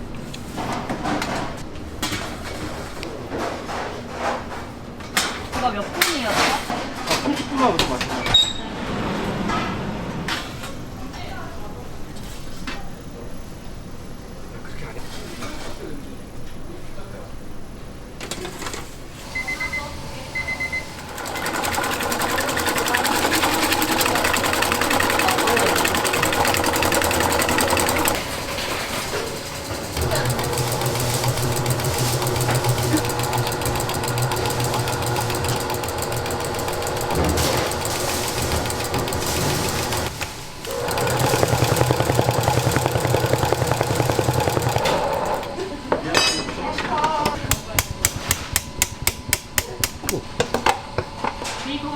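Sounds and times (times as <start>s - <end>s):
machine clattering: 21.0s - 40.1s, 40.7s - 45.6s.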